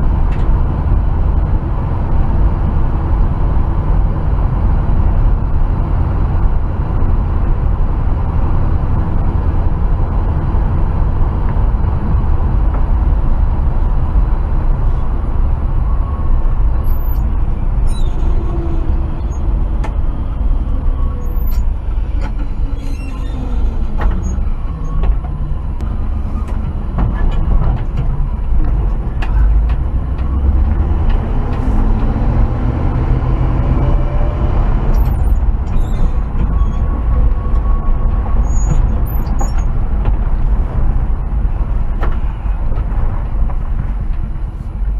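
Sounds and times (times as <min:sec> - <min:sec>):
truck engine rumbling: 0:00.0 - 0:44.9.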